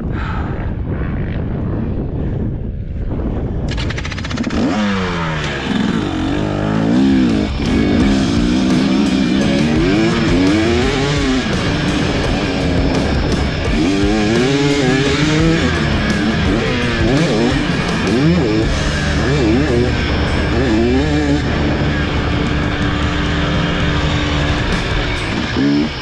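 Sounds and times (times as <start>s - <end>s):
dirt bike engine revving: 3.7s - 26.0s
guitar music: 5.6s - 26.0s.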